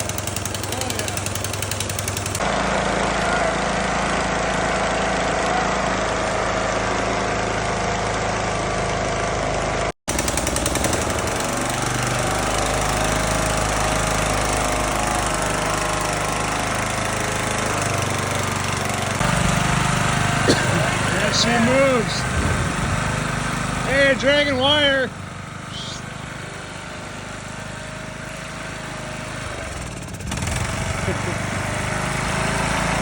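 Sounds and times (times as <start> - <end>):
lawn mower engine running: 0.0 - 33.0.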